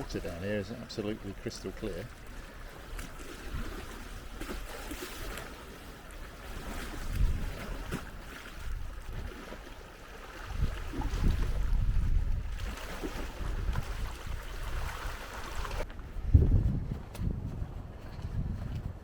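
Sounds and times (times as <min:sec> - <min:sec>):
water washing against shore: 0:00.0 - 0:15.9
wind buffeting microphone: 0:06.6 - 0:09.4, 0:10.4 - 0:19.0.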